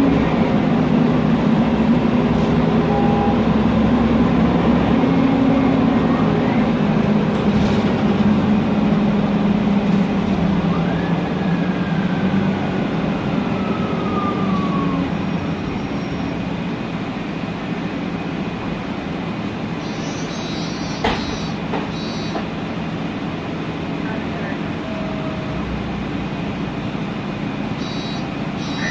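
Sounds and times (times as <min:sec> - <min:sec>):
bus engine and cooling fan: 0:00.0 - 0:28.9
gearbox whistle gliding down: 0:19.8 - 0:22.4, 0:27.8 - 0:28.9.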